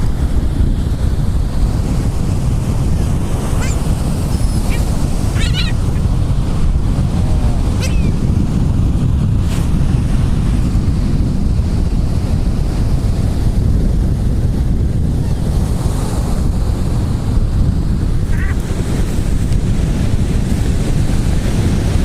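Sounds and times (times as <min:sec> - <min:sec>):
ocean surf: 0:00.0 - 0:22.0
wind buffeting microphone: 0:00.0 - 0:22.0
gull call: 0:03.6 - 0:03.8, 0:04.6 - 0:06.1, 0:07.8 - 0:08.2.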